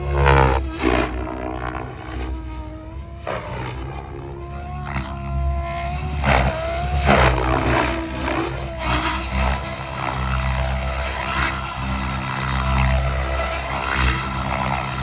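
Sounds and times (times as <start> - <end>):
electric motor whine: 0.0 - 15.0
helicopter rotor blades rushing: 0.0 - 15.0.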